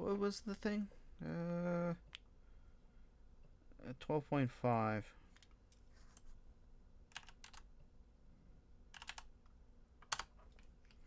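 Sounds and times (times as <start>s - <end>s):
quiet room hum: 0.0s - 11.0s
keyboard keystrokes: 7.1s - 7.6s, 9.0s - 9.2s.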